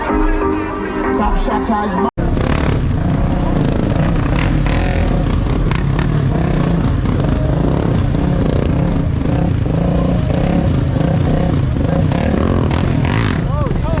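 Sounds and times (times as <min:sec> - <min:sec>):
car engines rumbling: 0:02.2 - 0:14.0.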